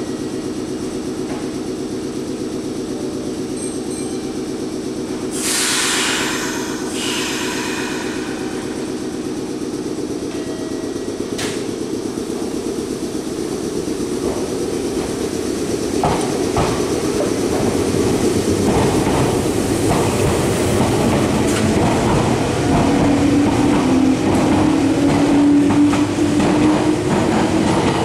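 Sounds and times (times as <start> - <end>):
train rolling noise: 0.0 - 28.0
loud hiss: 5.3 - 9.5.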